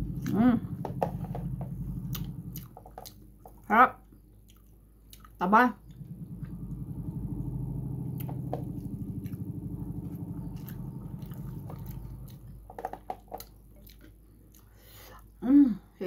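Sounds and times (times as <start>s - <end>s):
low hum with fast flutter: 0.0s - 4.3s, 5.5s - 14.0s
chewing with wet mouth clicks: 2.1s - 6.0s, 8.2s - 9.4s, 10.5s - 12.6s, 13.2s - 15.4s.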